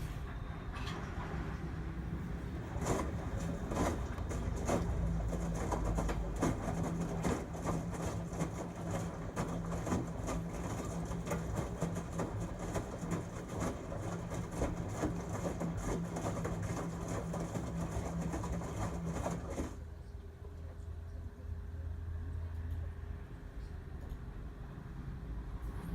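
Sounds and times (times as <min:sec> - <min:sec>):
washing machine motor hum: 0:01.0 - 0:20.0
drum clattering and swishing: 0:02.6 - 0:19.7.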